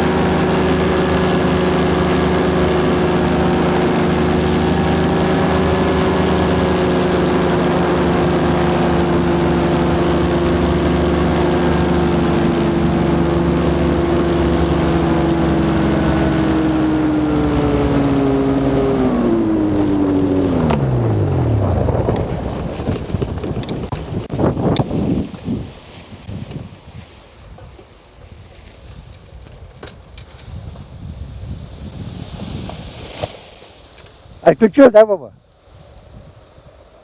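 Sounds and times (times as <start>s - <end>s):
paramotor engine and propeller running: 0.0s - 26.1s.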